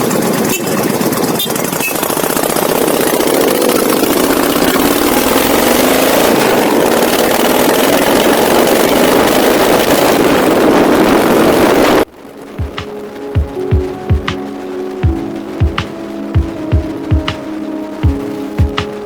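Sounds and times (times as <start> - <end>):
motorcycle engine running: 0.0 - 10.2
wind on microphone: 0.0 - 19.0.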